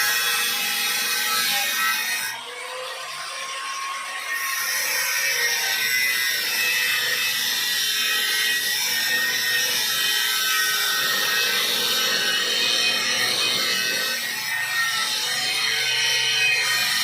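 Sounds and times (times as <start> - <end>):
power tool grinding: 4.1 - 17.0.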